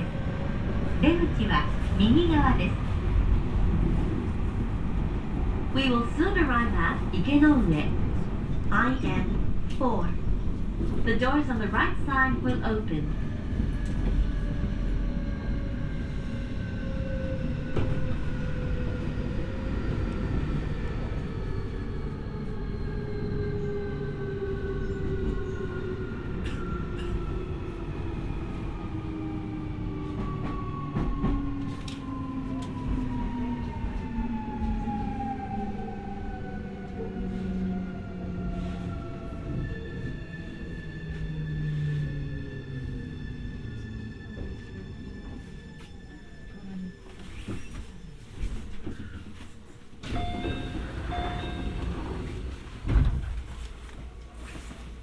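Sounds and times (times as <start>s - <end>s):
wheels rumbling on rail: 0.0s - 55.0s
rail joint clicks: 10.7s - 14.4s, 50.0s - 54.3s.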